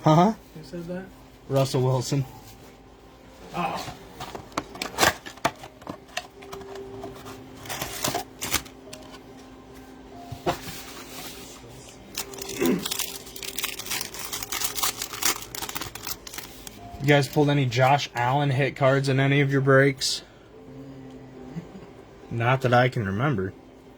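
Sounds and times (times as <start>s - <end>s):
foil wrappers crinkling: 3.6s - 9.2s, 10.6s - 18.0s
cards clicking and rustling: 4.2s - 9.2s, 12.0s - 18.0s.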